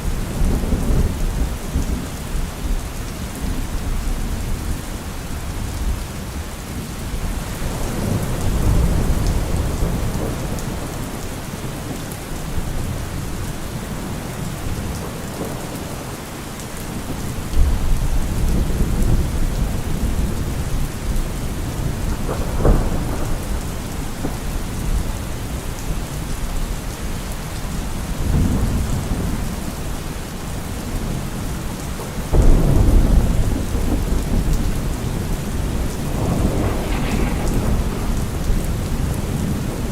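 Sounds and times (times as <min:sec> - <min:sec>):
heavy rain on a car roof: 0:00.0 - 0:39.9
thunder rumbling: 0:32.3 - 0:39.9.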